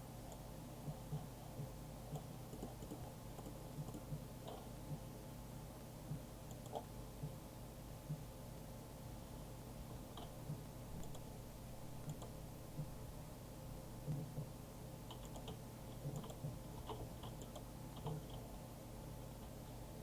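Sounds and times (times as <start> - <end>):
mechanism humming: 0.0 - 20.0
light mechanical clicks: 6.2 - 7.4, 10.0 - 11.3, 12.0 - 12.4, 14.1 - 18.5.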